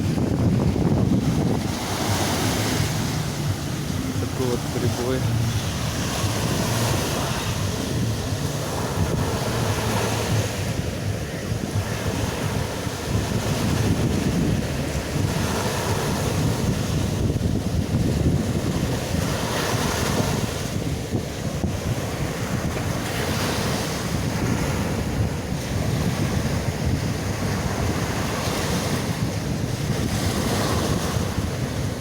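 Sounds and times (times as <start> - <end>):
waves crashing on beach: 0.0 - 32.0
wind buffeting microphone: 0.0 - 32.0.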